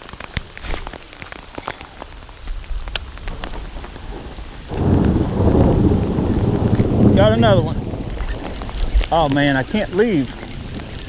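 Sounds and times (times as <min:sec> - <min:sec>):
heavy rain pattering: 0:00.0 - 0:11.0
loud low rumble: 0:03.1 - 0:08.3.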